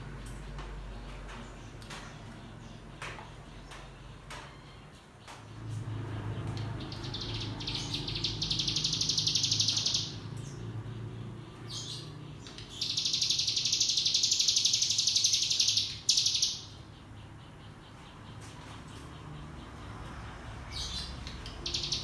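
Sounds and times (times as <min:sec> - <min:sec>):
bird singing buzzing trill: 0:05.5 - 0:22.0.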